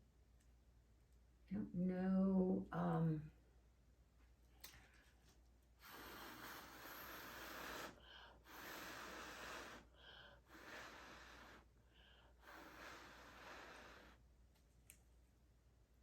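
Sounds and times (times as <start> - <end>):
person breathing noisily: 5.8 - 14.2.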